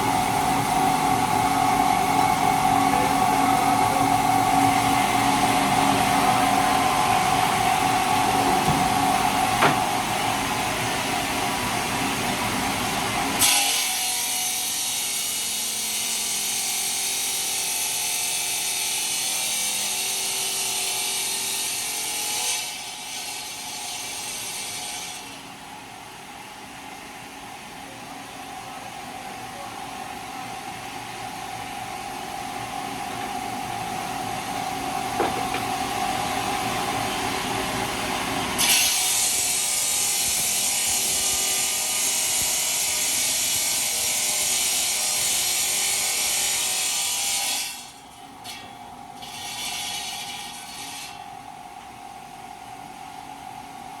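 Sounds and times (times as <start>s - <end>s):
saw-like grinding: 13.3s - 25.4s, 34.4s - 36.3s, 38.4s - 51.3s.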